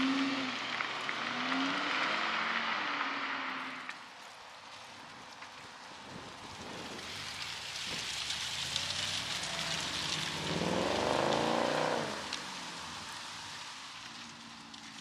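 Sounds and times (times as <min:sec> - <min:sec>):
car accelerating past: 0:00.0 - 0:04.0, 0:06.9 - 0:14.9.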